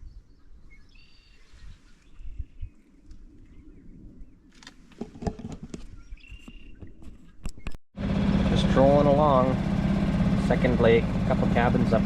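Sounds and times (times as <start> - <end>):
birds chirping and whistling: 0.0 - 4.6, 5.8 - 7.8
low uneven rumble: 8.0 - 12.0.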